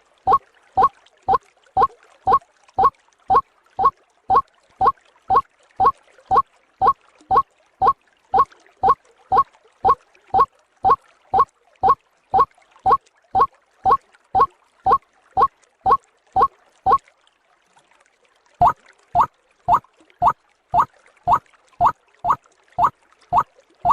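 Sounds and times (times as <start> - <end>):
waterhen calling: 18.6 - 23.9.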